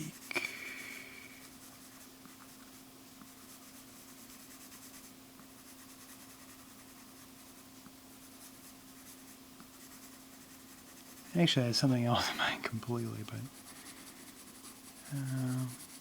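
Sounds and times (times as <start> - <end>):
low electrical hum: 0.0 - 16.0
drawing tool scratching: 13.0 - 16.0.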